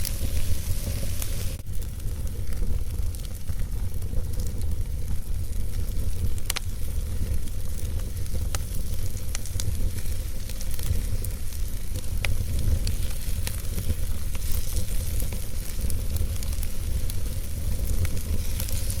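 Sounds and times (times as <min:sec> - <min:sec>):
fire crackling and popping: 0:00.0 - 0:19.0
fire rumbling and hissing: 0:00.0 - 0:19.0.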